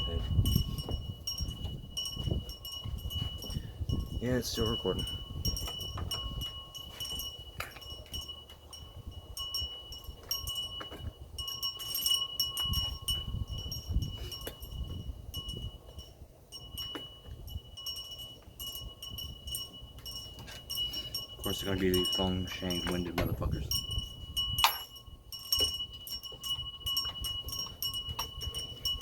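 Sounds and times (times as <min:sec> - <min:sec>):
screwdriver and screws clinking: 0:24.6 - 0:25.8.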